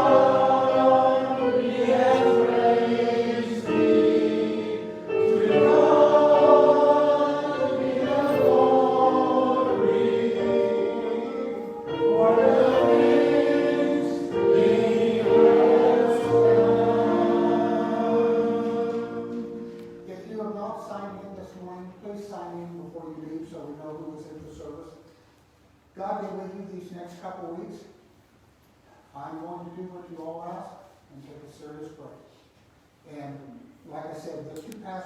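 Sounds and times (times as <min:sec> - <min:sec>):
choir singing a hymn: 0:00.0 - 0:20.9.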